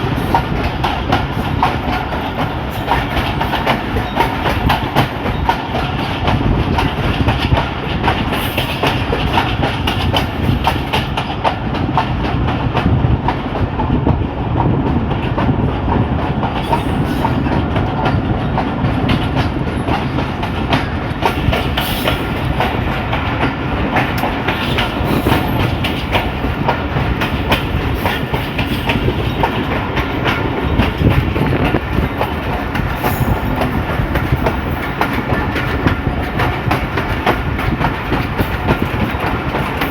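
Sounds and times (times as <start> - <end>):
train rumbling: 0.0 - 39.9
wheels clacking over rail joints: 0.0 - 39.9.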